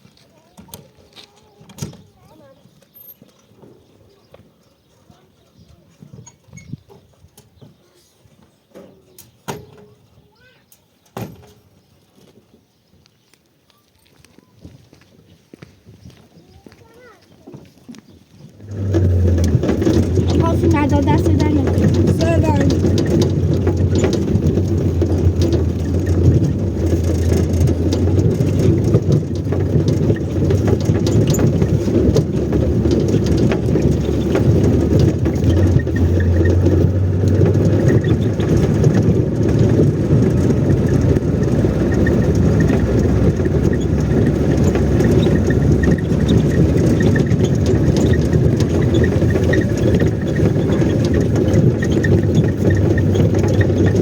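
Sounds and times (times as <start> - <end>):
engine running steadily: 18.6 - 54.0.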